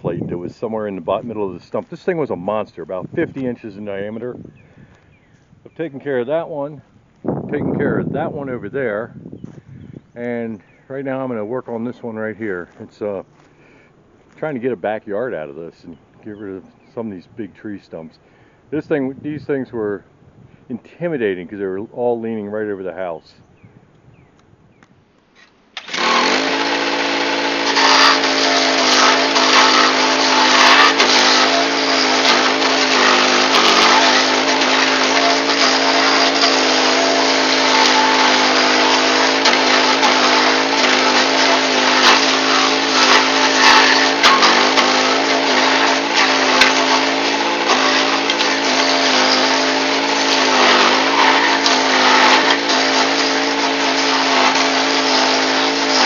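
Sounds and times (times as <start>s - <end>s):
stump grinder engine running: 0.0s - 6.7s, 25.7s - 56.0s
cutter wheel grinding wood: 0.0s - 17.2s, 25.4s - 56.0s.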